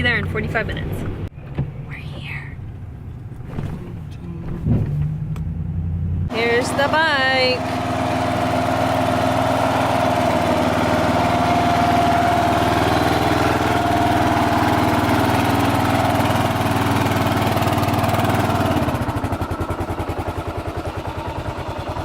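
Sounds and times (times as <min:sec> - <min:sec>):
motorcycle engine running: 0:05.0 - 0:22.0.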